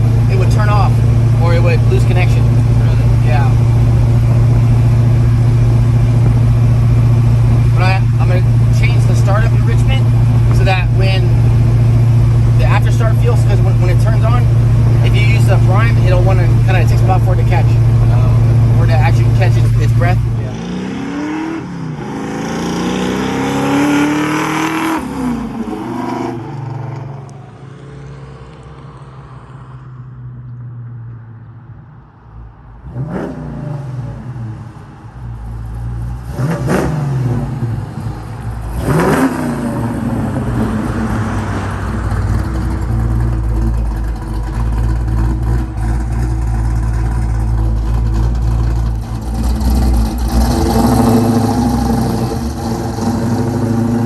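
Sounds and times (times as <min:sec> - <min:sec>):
car engine revving: 0:00.0 - 0:30.6, 0:32.7 - 0:54.0.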